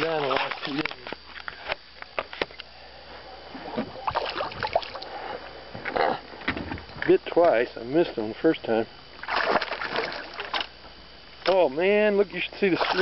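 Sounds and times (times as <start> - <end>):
water splashing against boat: 3.7 - 5.1, 9.2 - 10.7, 12.6 - 13.0.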